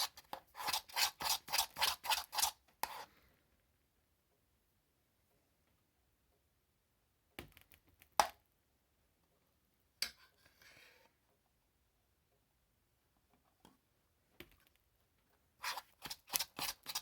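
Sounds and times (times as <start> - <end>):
tap and scrape on container: 0.0 - 3.1.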